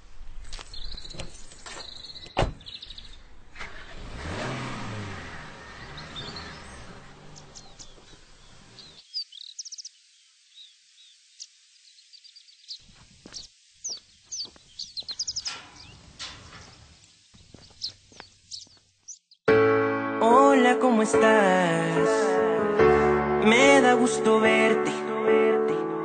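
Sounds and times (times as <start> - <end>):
birds chirping: 0.2 - 3.9, 4.6 - 19.5
low car engine rumble: 2.1 - 9.0.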